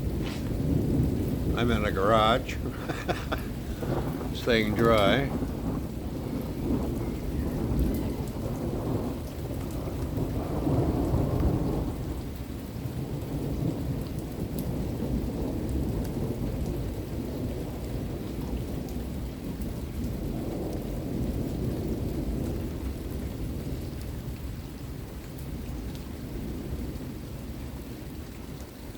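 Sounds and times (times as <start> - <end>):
rolling thunder: 0.0 - 27.6
steady rain: 0.0 - 28.9.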